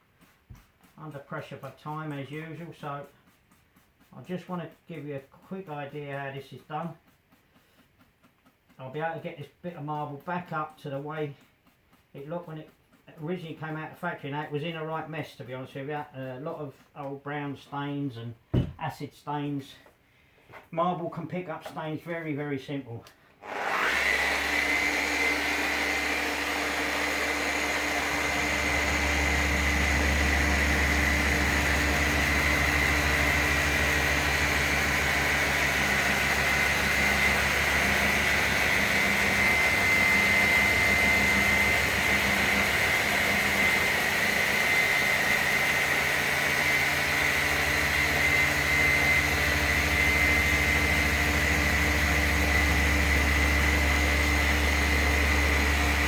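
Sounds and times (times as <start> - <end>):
electric polisher whining: 23.4 - 56.0.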